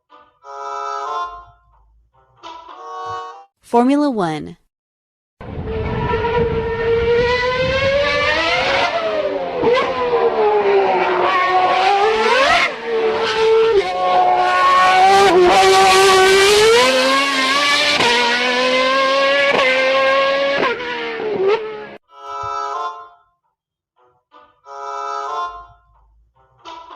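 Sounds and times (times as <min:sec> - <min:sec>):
race car engine at high revs: 0:05.4 - 0:22.0.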